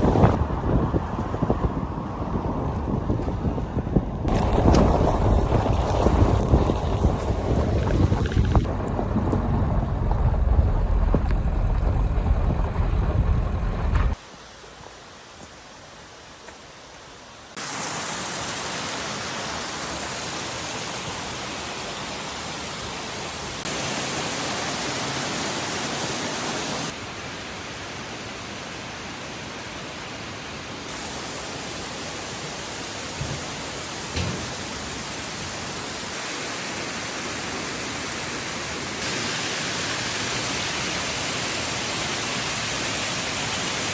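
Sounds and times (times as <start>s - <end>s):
wind rumble on microphone: 0.0s - 14.2s
rushing hiss: 17.5s - 27.0s, 30.9s - 43.9s.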